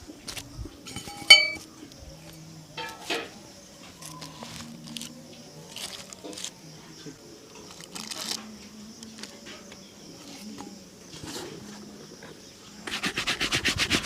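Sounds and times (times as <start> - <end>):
rubbing strokes on a shoe: 12.7 - 14.0.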